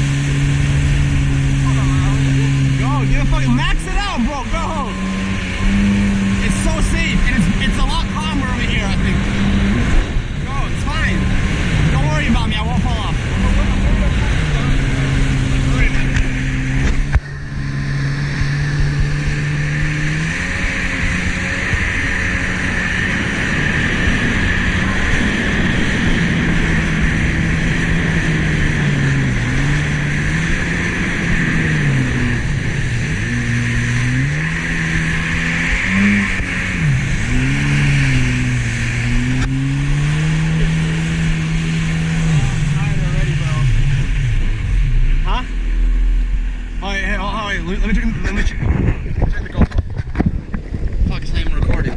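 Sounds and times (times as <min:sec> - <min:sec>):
jet ski engine running: 0:00.0 - 0:51.9
steady rushing noise: 0:00.0 - 0:51.9.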